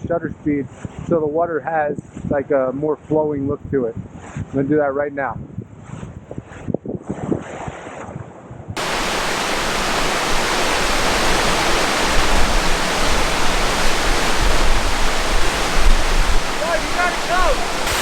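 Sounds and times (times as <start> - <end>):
waterfall roaring: 8.8 - 18.0.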